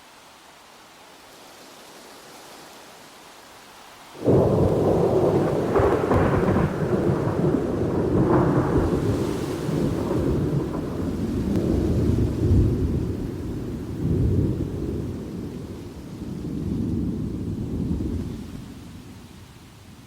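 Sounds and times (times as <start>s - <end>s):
faint steady hiss: 0.0s - 20.0s
thunder clap and rumble: 4.2s - 18.6s.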